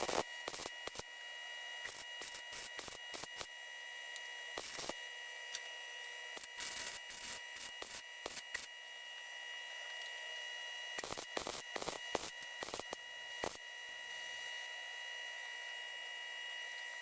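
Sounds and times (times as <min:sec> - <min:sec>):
steady high-pitched whine: 0:00.0 - 0:17.0.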